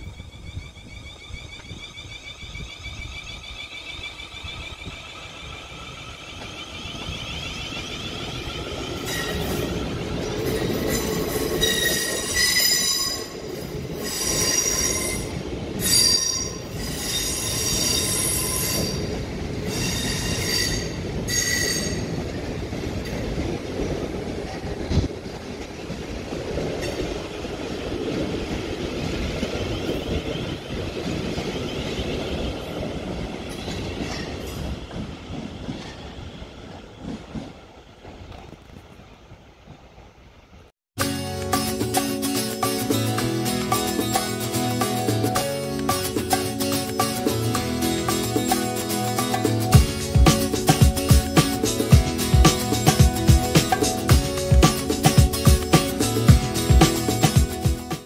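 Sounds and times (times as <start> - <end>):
high wheel squeal: 0.0 - 22.2
wheels rumbling on track: 0.0 - 58.0.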